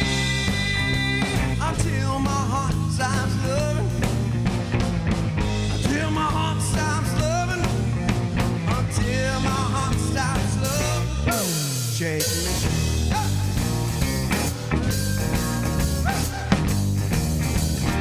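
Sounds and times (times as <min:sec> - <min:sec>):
bass guitar: 0:00.0 - 0:18.0
drums: 0:00.0 - 0:18.0
electric guitar lead with bent notes: 0:12.5 - 0:18.0.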